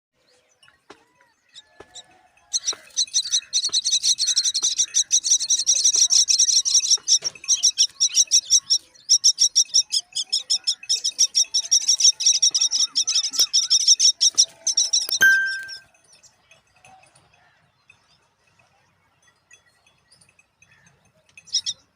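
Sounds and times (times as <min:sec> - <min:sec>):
nestlings chirping: 0:02.5 - 0:15.9.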